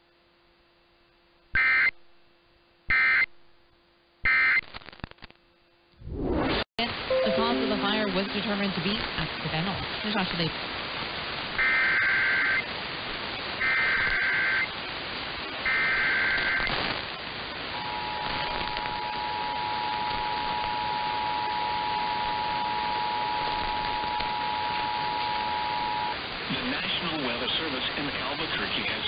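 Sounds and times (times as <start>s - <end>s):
radio static: 7.8s - 17.1s, 23.5s - 29.0s
two-tone alarm: 13.6s - 14.7s, 15.7s - 16.7s, 19.0s - 26.2s.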